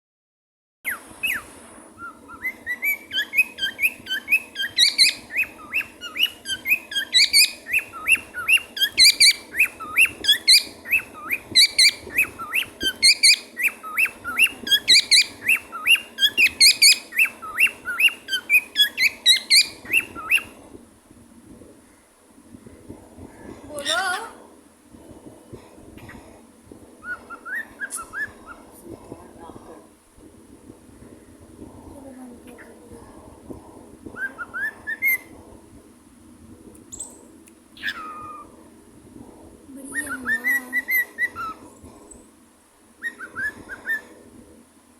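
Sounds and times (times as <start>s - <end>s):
cockatiel chirping and whistling: 0.9s - 1.4s, 2.0s - 20.5s, 27.0s - 28.6s, 34.2s - 35.2s, 37.8s - 38.5s, 40.0s - 41.6s, 43.0s - 44.0s.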